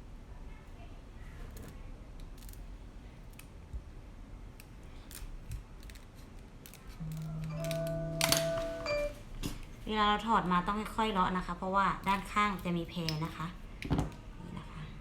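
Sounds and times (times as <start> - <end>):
steady low tone: 7.0 - 9.2.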